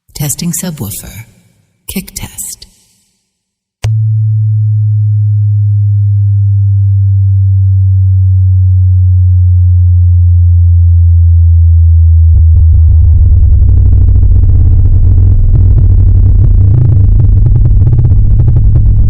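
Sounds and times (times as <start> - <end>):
deep bass test tone: 3.8 - 19.0
fast pulsing bass beat: 3.9 - 19.0.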